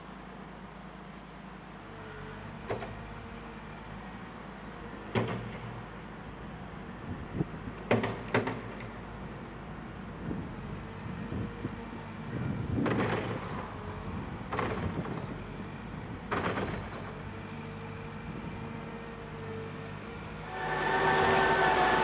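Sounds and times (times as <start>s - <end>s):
heavy diesel engine running: 18.2s - 22.0s.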